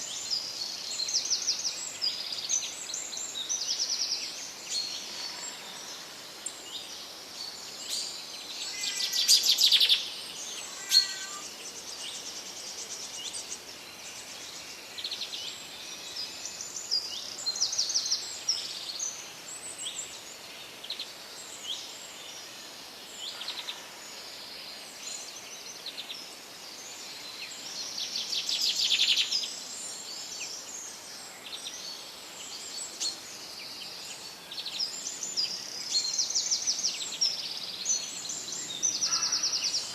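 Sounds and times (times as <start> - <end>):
birds chirping and calling: 8.7 - 11.6, 38.3 - 39.9
loud rapid bird trills: 10.5 - 11.5.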